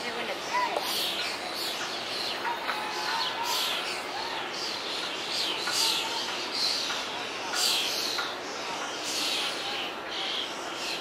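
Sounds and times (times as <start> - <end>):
birds chirping: 0.0 - 11.0
steady outdoor hiss: 0.0 - 11.0.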